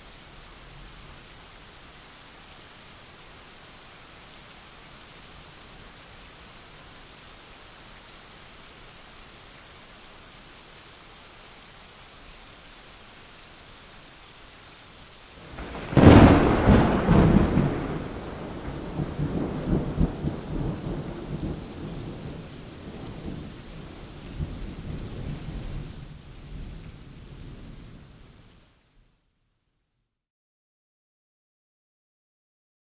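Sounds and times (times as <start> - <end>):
rain hissing: 0.0 - 28.9
thunder rumbling: 15.4 - 25.9.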